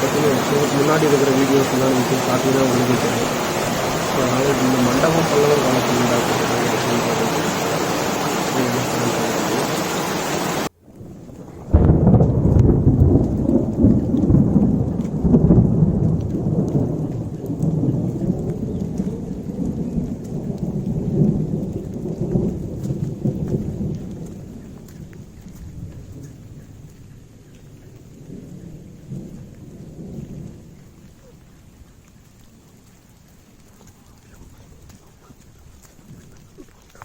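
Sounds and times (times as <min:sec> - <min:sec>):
heavy rain hiss: 0:00.0 - 0:26.8, 0:27.6 - 0:37.0
thunder rolling: 0:00.0 - 0:31.4.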